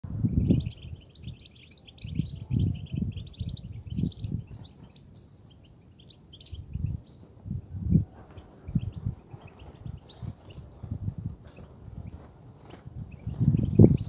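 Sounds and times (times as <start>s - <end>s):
goldfinch twittering: 0.4s - 7.2s.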